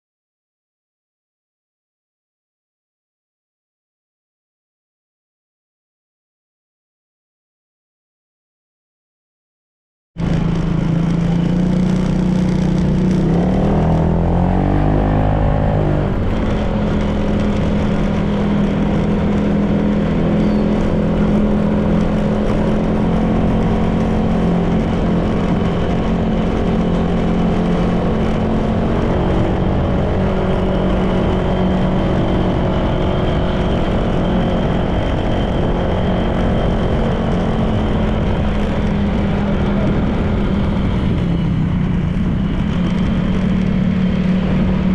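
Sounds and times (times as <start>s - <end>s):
road noise: 10.2s - 44.9s
scooter engine running: 10.2s - 44.9s.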